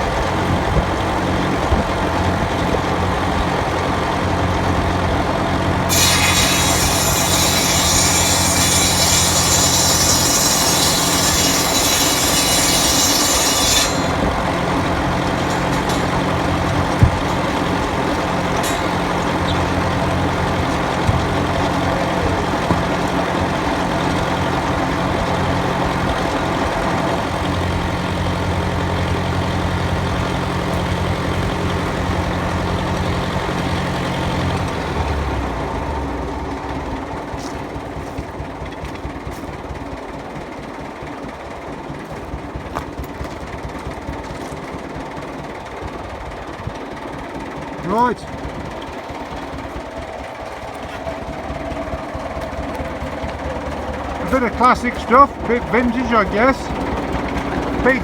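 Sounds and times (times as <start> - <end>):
diesel tractor engine running: 0.0 - 58.0
saw blade cutting wood: 5.9 - 27.5, 54.0 - 56.8.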